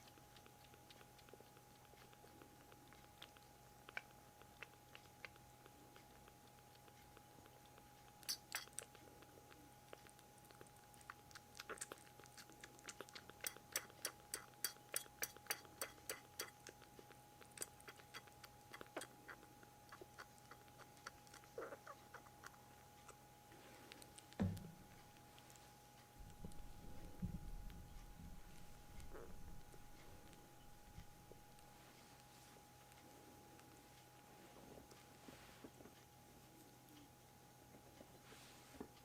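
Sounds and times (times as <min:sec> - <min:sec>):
faint steady hum: 0:00.0 - 0:39.0
kitten drinking milk: 0:00.0 - 0:39.0
thump: 0:24.4 - 0:24.8.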